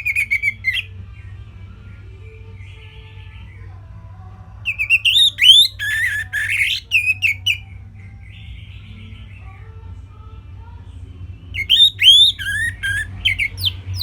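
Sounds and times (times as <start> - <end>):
thrush singing whistled notes: 0.0 - 0.9, 4.7 - 7.6, 11.6 - 14.0
low steady hum: 0.0 - 14.0.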